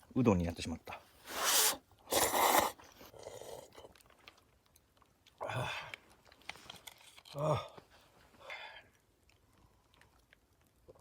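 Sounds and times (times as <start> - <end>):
person slurping noodles: 1.2 - 3.9
person chewing: 1.3 - 4.4.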